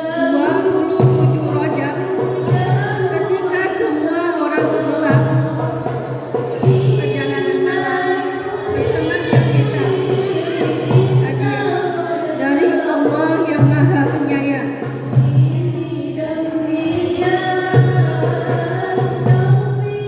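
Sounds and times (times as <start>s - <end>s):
group singing devotional song: 0.0s - 20.0s
low drum beats: 8.6s - 12.1s.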